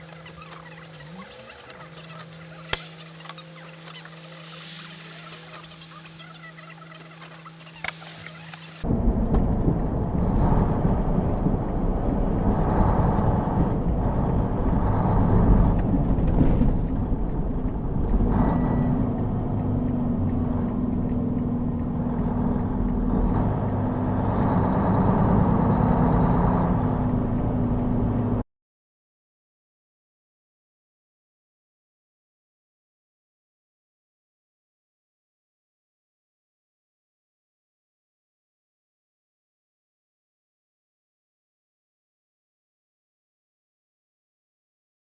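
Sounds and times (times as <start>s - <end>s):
vehicle engine and road noise: 0.0s - 28.5s.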